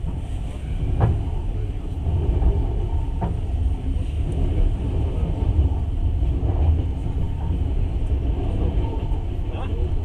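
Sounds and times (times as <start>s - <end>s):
train rumbling on rails: 0.0s - 10.0s.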